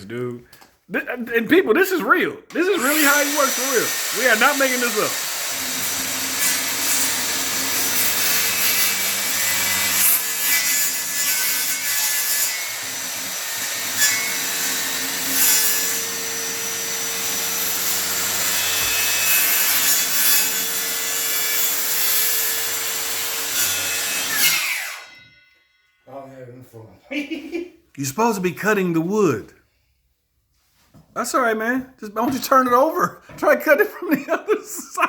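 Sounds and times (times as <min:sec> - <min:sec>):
saw winding down: 0:02.5 - 0:25.2
circular saw cutting wood: 0:02.5 - 0:25.4.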